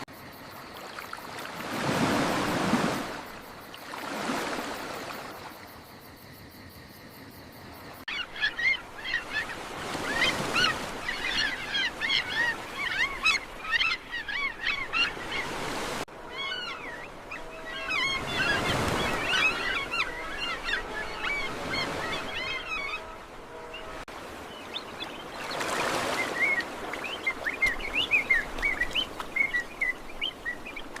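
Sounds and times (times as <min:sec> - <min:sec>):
waves washing: 0:00.0 - 0:05.8, 0:08.2 - 0:31.0
birds chirping: 0:08.1 - 0:31.0.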